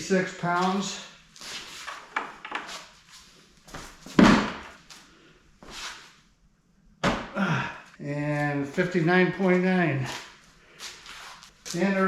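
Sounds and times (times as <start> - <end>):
heavy thud: 4.1 - 4.7, 7.0 - 7.4.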